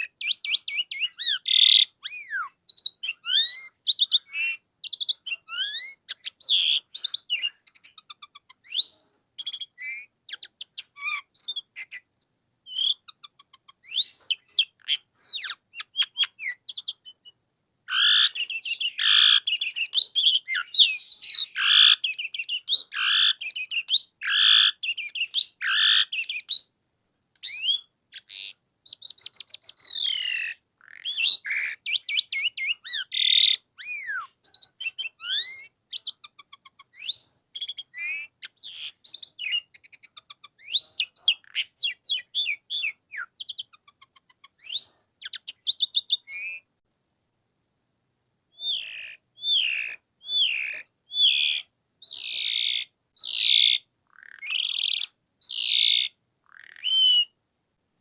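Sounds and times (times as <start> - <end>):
starling singing varied song: 0.0 - 26.7.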